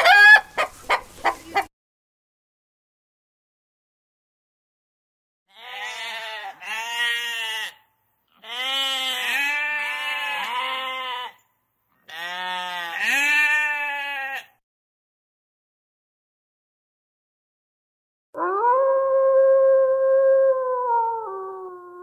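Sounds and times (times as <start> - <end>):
sheep bleating: 5.5 - 11.4, 12.0 - 14.6.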